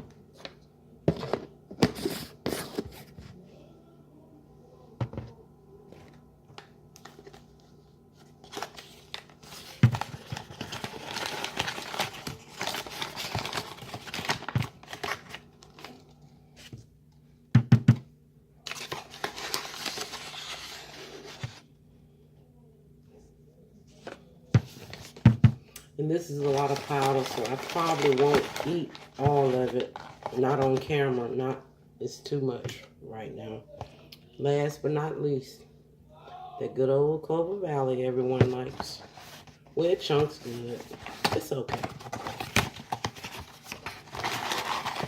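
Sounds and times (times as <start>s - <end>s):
bag crinkling and rustling: 26.4s - 30.5s, 40.3s - 45.0s.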